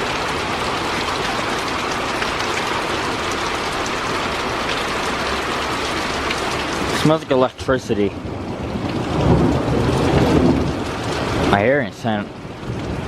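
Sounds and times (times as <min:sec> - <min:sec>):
heavy rain pouring: 0:00.0 - 0:13.0
rolling thunder rumble: 0:08.1 - 0:11.7.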